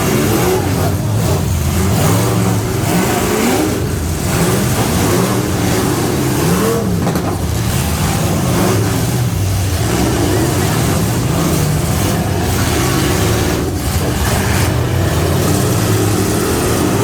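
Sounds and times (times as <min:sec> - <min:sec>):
pickup truck engine revving: 0:00.0 - 0:17.0.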